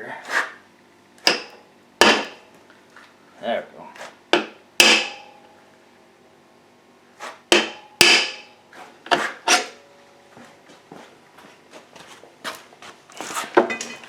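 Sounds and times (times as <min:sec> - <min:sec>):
hammer striking metal rod: 0:01.2 - 0:02.4, 0:04.4 - 0:05.5, 0:07.5 - 0:08.6.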